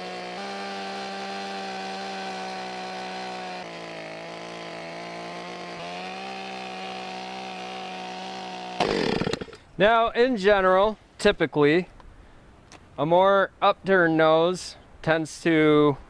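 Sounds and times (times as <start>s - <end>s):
chainsaw carving wood: 0.0s - 9.6s.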